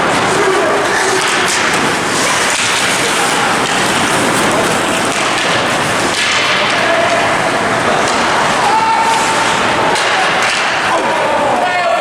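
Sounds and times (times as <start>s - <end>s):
ice hockey rink crowd noise: 0.0s - 12.0s.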